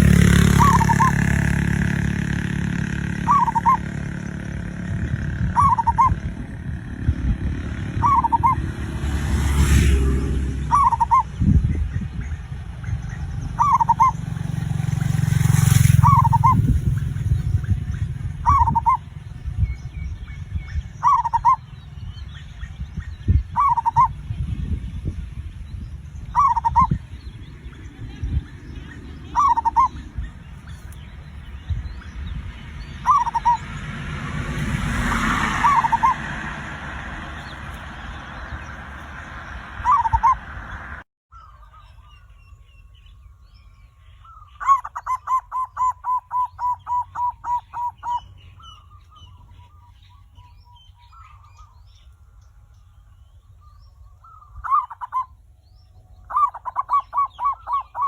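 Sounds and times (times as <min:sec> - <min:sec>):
low background rumble: 0:00.0 - 0:09.1, 0:16.0 - 0:34.9
dove cooing: 0:00.0 - 0:19.4, 0:20.9 - 0:22.5, 0:23.4 - 0:24.3, 0:26.1 - 0:41.0, 0:44.6 - 0:48.3, 0:54.3 - 0:55.3, 0:56.3 - 0:58.0.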